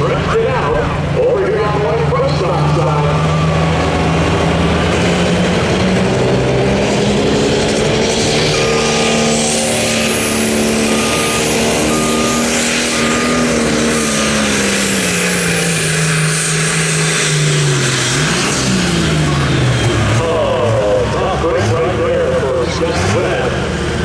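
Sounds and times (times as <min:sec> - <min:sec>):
diesel engine under load: 0:00.0 - 0:24.0
short beep: 0:08.4 - 0:13.7
turbo whistle: 0:08.4 - 0:14.3.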